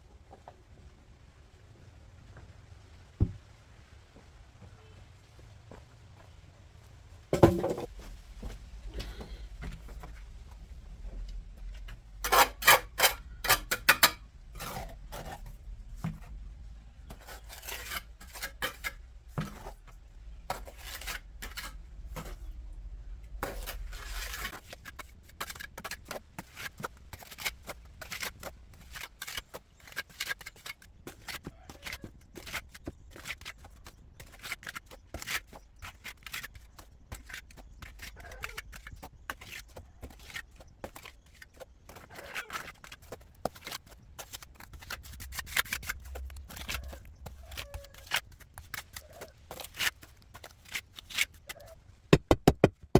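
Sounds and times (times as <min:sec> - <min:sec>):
tool scrapes and clicks: 0:12.2 - 0:15.5
sharp knocks: 0:52.1 - 0:52.9.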